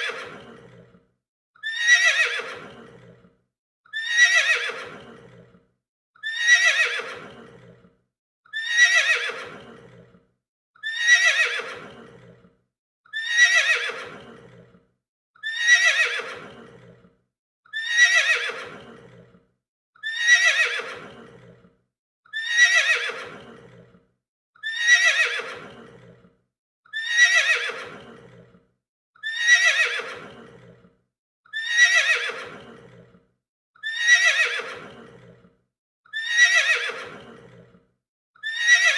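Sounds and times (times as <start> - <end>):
horse neighing: 1.6 - 3.2, 4.0 - 5.5, 6.2 - 7.8, 8.6 - 10.1, 10.8 - 12.4, 13.2 - 14.7, 15.5 - 17.0, 17.8 - 19.3, 20.0 - 21.6, 22.4 - 23.9, 24.6 - 26.2, 27.0 - 28.5, 29.2 - 30.8, 31.6 - 33.1, 33.8 - 35.4, 36.2 - 37.7.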